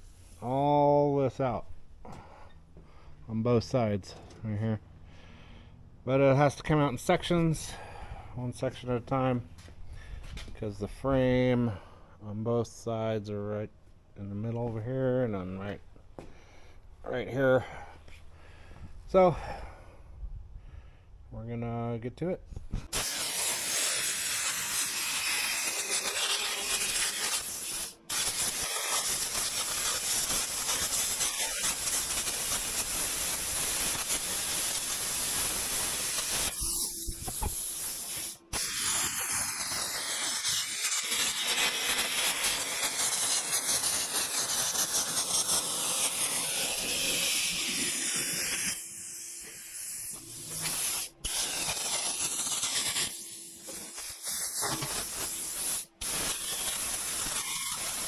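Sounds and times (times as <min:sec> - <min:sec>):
cutting torch hissing: 0:22.8 - 0:58.0.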